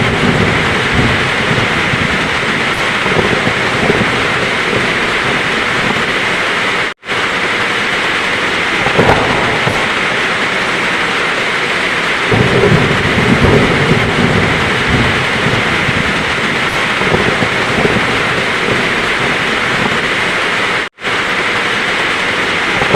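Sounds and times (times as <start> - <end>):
heavy rain: 0.0 - 22.9
thunder rumbling: 0.0 - 22.9.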